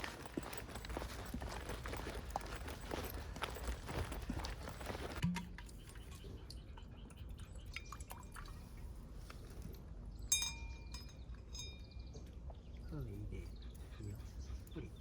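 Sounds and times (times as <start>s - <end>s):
metallic clink with chime tone: 10.3s - 12.1s.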